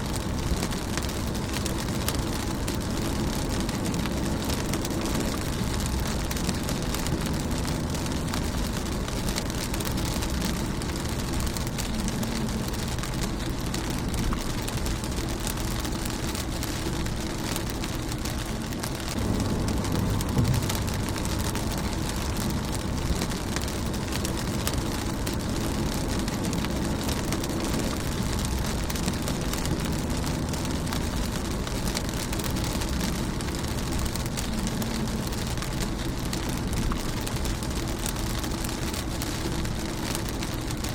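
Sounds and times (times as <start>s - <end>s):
rain on a windshield: 0.0s - 40.9s.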